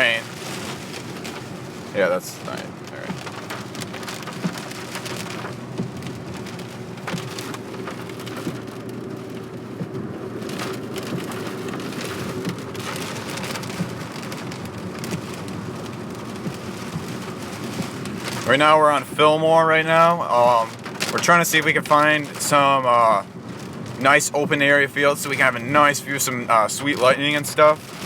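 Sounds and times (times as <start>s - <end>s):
low hum of car: 0.0s - 28.0s
rain pattering on a car: 0.0s - 28.0s.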